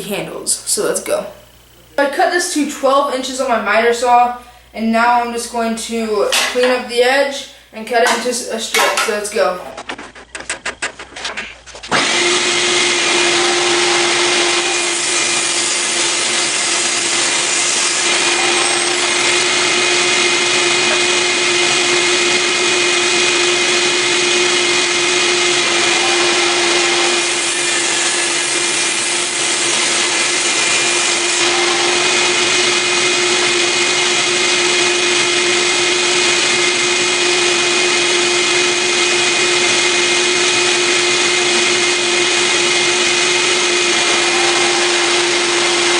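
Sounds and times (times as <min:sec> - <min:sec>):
saw ripping wood: 0:08.8 - 0:22.1, 0:22.7 - 0:35.4, 0:41.1 - 0:45.9
table saw whining: 0:11.9 - 0:45.9.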